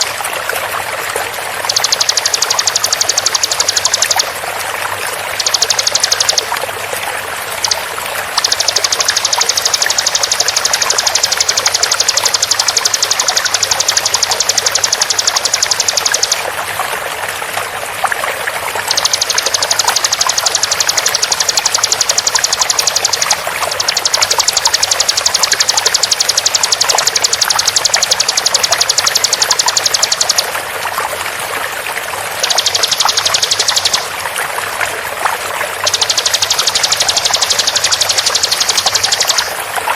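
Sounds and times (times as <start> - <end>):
flowing water: 0.0 - 39.9
bird rapid high call: 1.6 - 4.4, 5.3 - 6.6, 7.6 - 16.4, 18.8 - 30.6, 32.4 - 34.2, 35.8 - 39.9.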